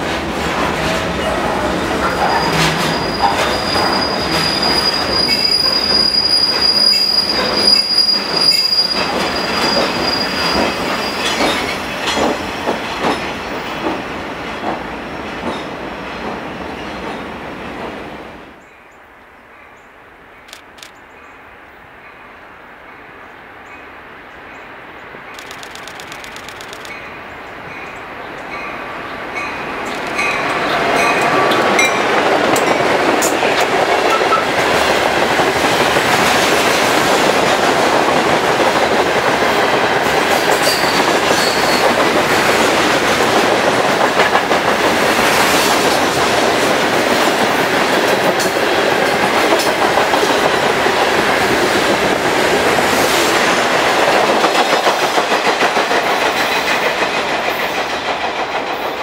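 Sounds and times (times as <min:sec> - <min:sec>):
diesel locomotives passing: 0:00.0 - 0:18.7, 0:24.4 - 0:59.0
train wheels on rails: 0:00.0 - 0:18.7, 0:25.3 - 0:59.0
clacking over rail joints: 0:10.5 - 0:17.2, 0:29.8 - 0:51.4.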